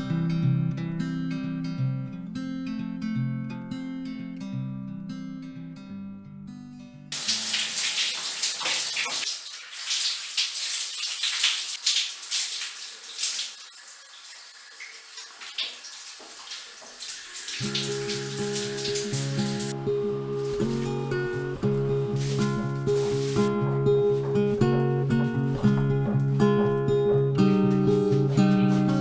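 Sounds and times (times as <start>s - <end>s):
acoustic guitar music: 0.0s - 7.1s, 17.6s - 29.0s.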